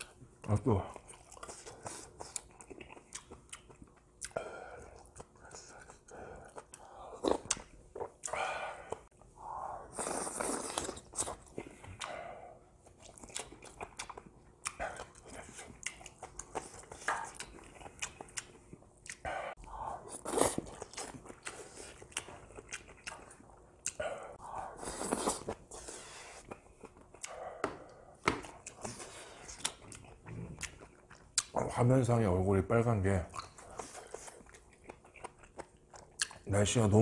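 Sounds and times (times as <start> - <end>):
person chewing with wet smacks: 0.0 - 9.3, 10.0 - 25.6, 26.3 - 31.7, 33.2 - 36.5.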